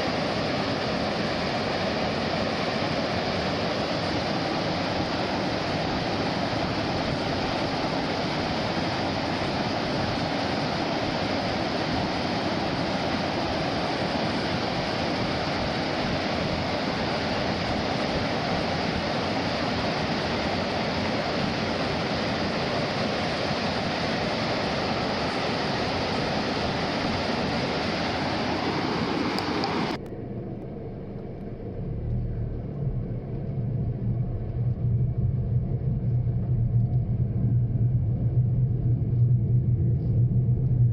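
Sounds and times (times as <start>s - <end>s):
rushing falling water: 0.0s - 30.0s
low engine hum: 24.7s - 40.9s.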